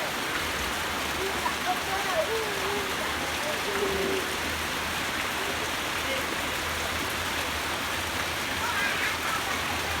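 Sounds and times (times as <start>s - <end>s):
rushing water: 0.0s - 10.0s
faint voices: 1.2s - 4.6s.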